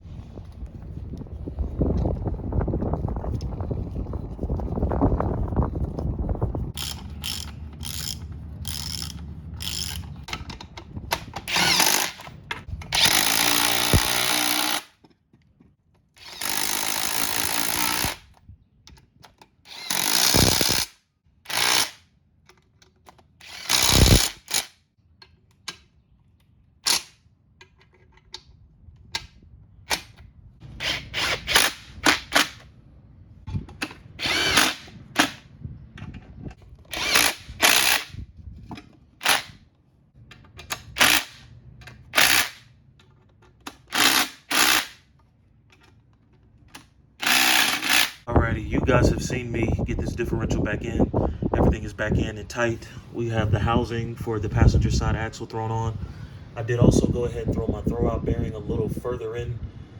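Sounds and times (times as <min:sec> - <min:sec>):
power drill bursts: 0:11.5 - 0:12.2, 0:13.0 - 0:14.9, 0:16.2 - 0:18.2, 0:19.7 - 0:20.9, 0:23.4 - 0:24.7, 0:30.8 - 0:32.5, 0:34.2 - 0:35.4, 0:36.9 - 0:38.1, 0:41.0 - 0:41.4, 0:42.2 - 0:42.6, 0:43.9 - 0:45.0, 0:47.2 - 0:48.2.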